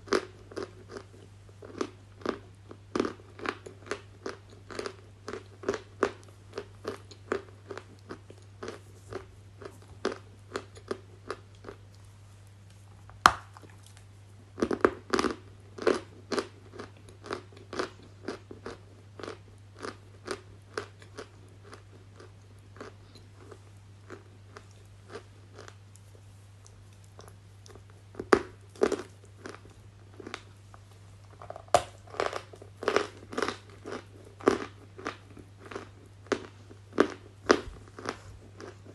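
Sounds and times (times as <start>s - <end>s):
faint low hum: 0.0s - 38.9s
crunching of something brittle: 31.3s - 38.8s.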